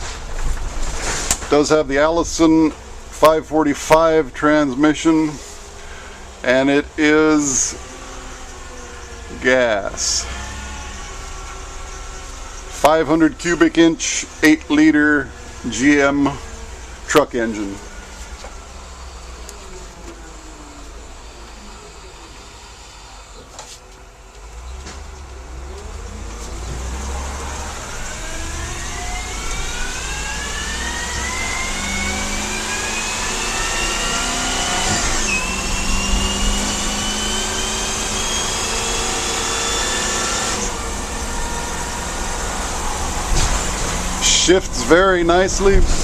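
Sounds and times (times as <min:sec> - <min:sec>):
bus engine accelerating: 0:00.0 - 0:46.0
transmission shifting up: 0:00.0 - 0:46.0.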